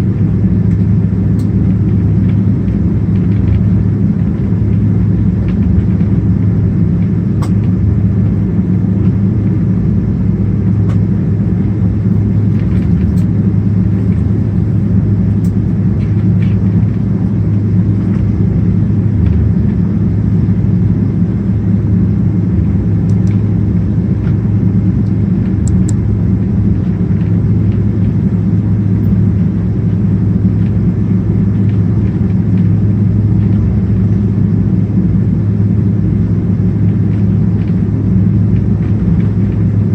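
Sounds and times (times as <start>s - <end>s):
jet engine low rumble: 0.0s - 39.9s.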